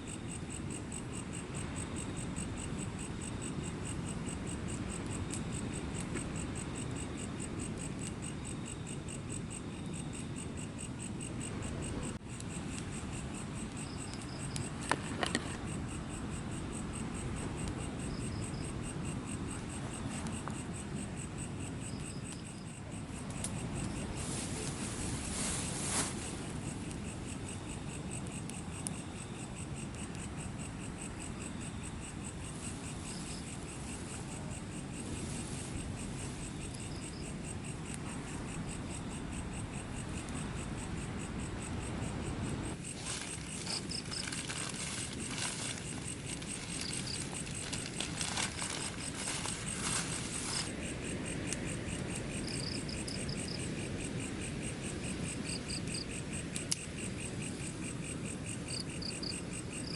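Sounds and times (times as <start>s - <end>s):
background hiss: 0.0s - 59.9s
crickets chirping: 0.0s - 59.9s
high insect trill: 0.0s - 59.9s
crackling clicks: 56.5s - 56.9s.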